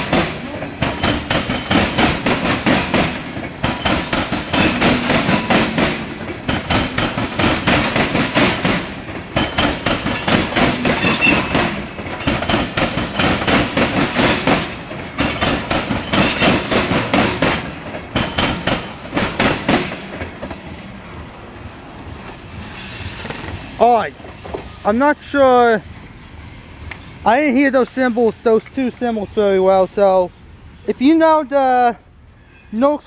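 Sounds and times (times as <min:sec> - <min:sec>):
train wheels clattering over rail joints: 0:00.0 - 0:20.8.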